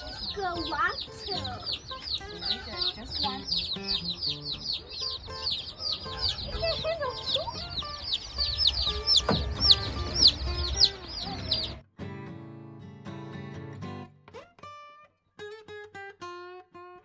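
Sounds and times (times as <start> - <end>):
chicks peeping: 0.0 - 11.8
acoustic guitar music: 0.0 - 17.0.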